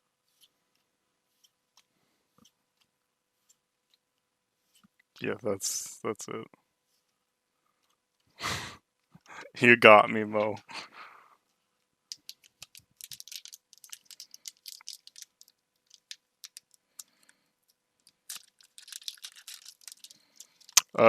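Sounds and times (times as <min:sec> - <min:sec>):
cards clicking and rustling: 0:12.1 - 0:17.4, 0:18.0 - 0:21.0.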